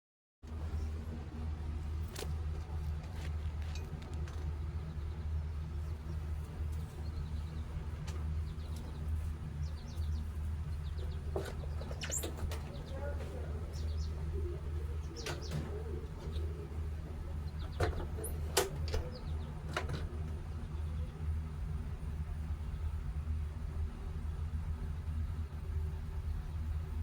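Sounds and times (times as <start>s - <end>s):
steady low rumble: 0.5s - 27.0s
birds chirping: 2.6s - 23.4s.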